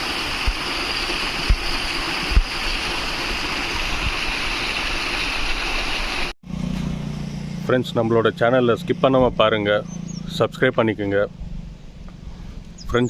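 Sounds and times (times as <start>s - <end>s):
wind thumps on microphone: 0.0s - 4.7s
flowing water rushing: 0.0s - 6.4s.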